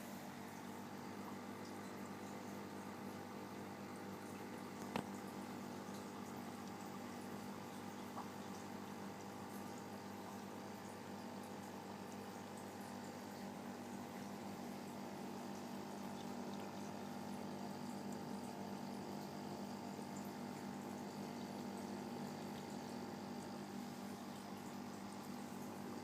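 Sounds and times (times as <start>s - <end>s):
filter pump humming: 0.0s - 26.0s
water bubbling and trickling: 0.2s - 26.0s.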